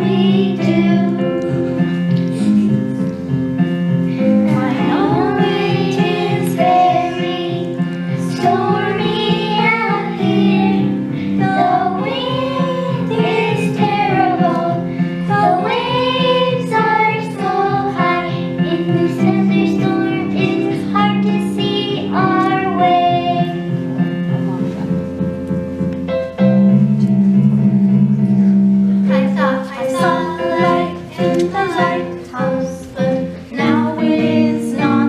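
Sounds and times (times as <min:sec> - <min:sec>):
children singing: 0:00.0 - 0:01.8, 0:04.3 - 0:23.6, 0:29.1 - 0:35.0
recorded instrumental accompaniment: 0:00.0 - 0:35.0.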